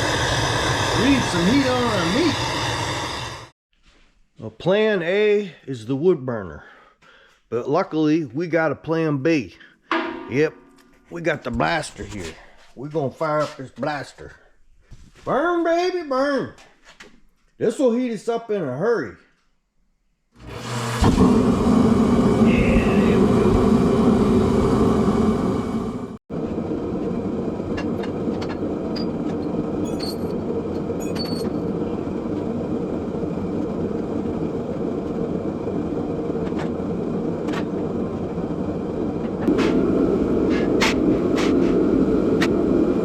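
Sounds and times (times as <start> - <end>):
space heater fan and burner roar: 0.0 - 3.5, 20.4 - 43.0.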